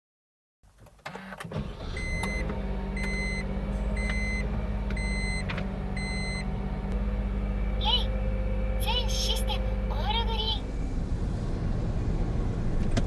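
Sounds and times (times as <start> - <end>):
car engine starting and idling: 0.7 - 13.0
electronic warning beep: 2.0 - 2.4, 3.0 - 6.5.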